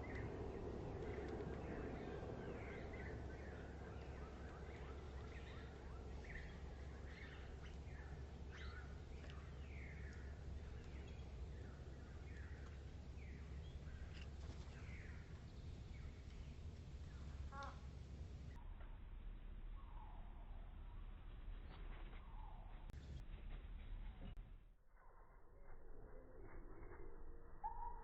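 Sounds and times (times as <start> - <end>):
small birds chirping: 0.0 - 18.6
low steady hum: 0.0 - 28.0.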